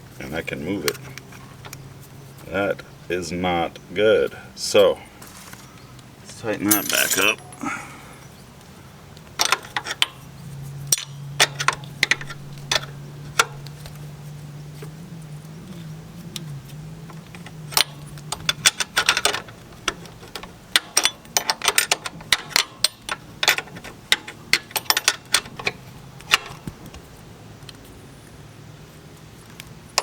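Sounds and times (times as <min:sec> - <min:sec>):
metal tool clinks: 0:06.6 - 0:08.1.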